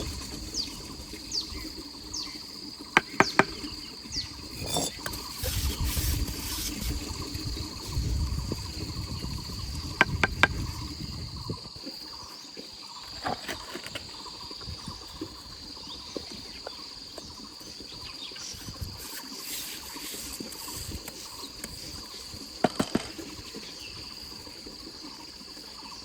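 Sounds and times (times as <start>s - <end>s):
insect chorus: 0.0s - 26.0s
sharp knocks: 3.0s - 3.6s.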